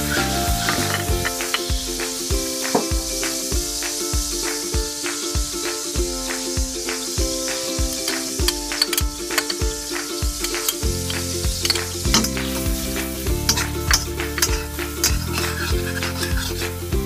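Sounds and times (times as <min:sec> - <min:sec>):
background music: 0:00.0 - 0:17.0
garlic and onion sizzling in pan: 0:00.0 - 0:17.0
spatula scraping and tapping pan: 0:08.0 - 0:12.5.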